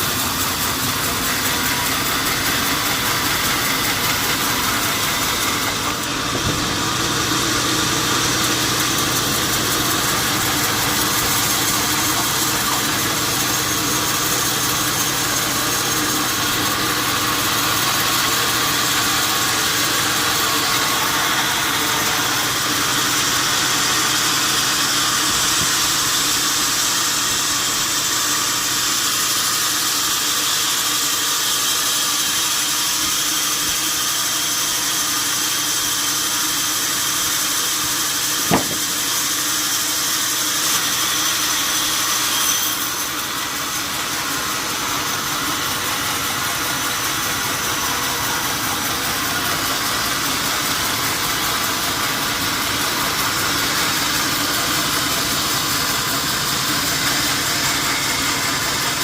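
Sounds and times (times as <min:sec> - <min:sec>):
machine noise with low hum: 0:38.1 - 0:59.0.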